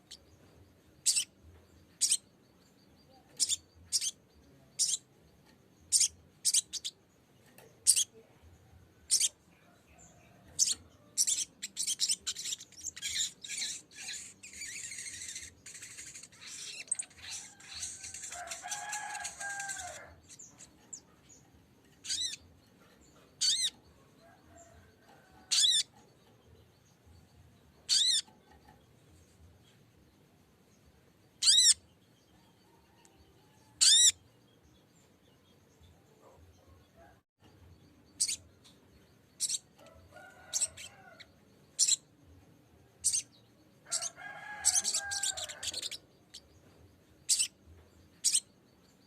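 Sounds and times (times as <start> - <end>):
bird chattering song: 1.0 - 8.3, 9.0 - 23.8, 25.4 - 27.0, 27.7 - 28.8, 31.3 - 32.8, 33.8 - 36.8, 37.8 - 42.2, 43.0 - 49.0
sharp high bird calls: 25.5 - 25.9, 27.9 - 28.4, 31.4 - 31.8, 33.8 - 34.2, 43.9 - 46.0.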